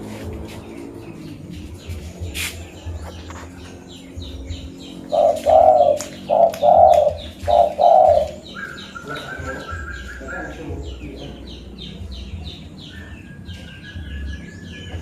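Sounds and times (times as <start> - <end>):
small birds chirping: 0.0 - 15.0
dove cooing: 4.3 - 10.6.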